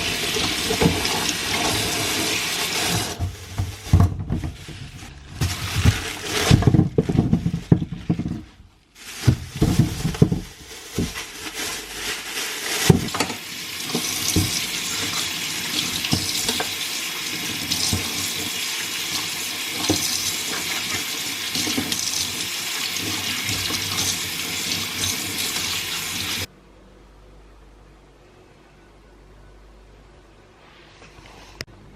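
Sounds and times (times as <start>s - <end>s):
tap water running into sink: 0.0s - 4.4s, 12.9s - 26.5s
items clattering in sink: 0.0s - 26.5s.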